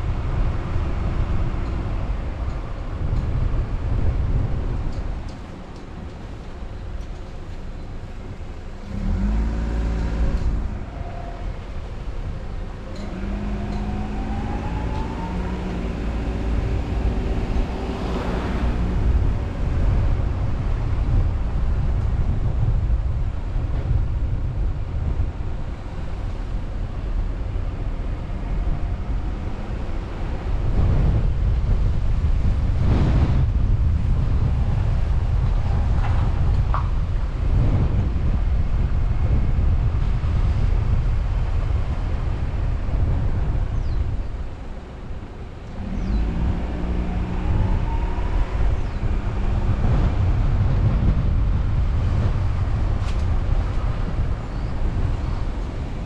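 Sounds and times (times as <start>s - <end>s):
car driving: 0.0s - 56.0s
road and wind noise: 0.0s - 56.0s
car engine accelerating: 8.3s - 21.1s, 44.6s - 56.0s.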